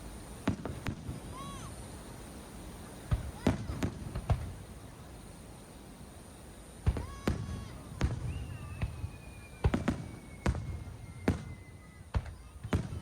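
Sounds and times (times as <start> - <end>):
fireworks bangs: 0.0 - 5.2, 6.8 - 13.0
firework whistle falling in pitch: 6.9 - 13.0.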